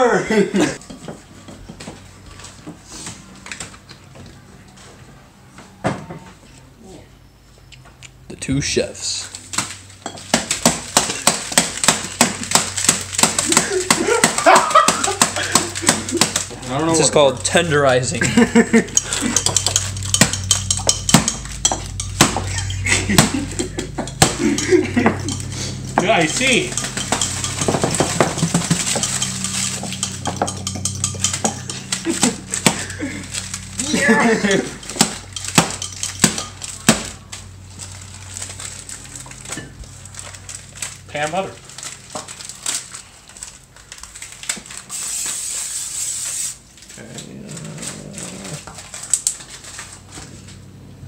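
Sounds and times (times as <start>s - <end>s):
steady low hum: 6.6s - 44.4s
metal utensil clinking on glass dish: 19.0s - 23.0s, 23.6s - 32.6s, 34.8s - 36.8s
aerosol spray hissing: 44.9s - 46.6s.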